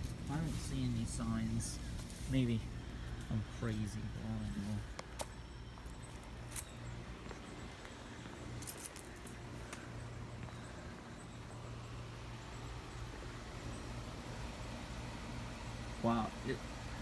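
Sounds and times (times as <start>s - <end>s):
heat pump unit humming: 0.0s - 17.0s.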